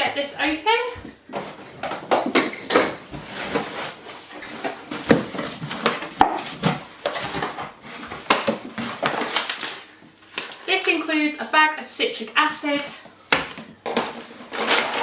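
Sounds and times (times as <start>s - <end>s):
parcel packaging rustling: 3.3s - 11.3s, 13.5s - 15.0s.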